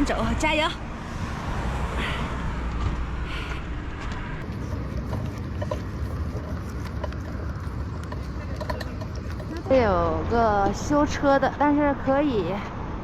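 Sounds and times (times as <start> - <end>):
highway traffic rumble: 0.0 - 13.0.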